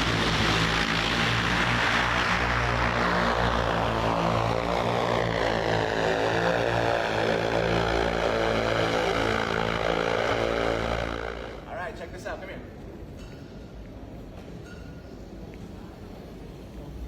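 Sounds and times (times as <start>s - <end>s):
aircraft propellers droning: 0.0s - 12.4s.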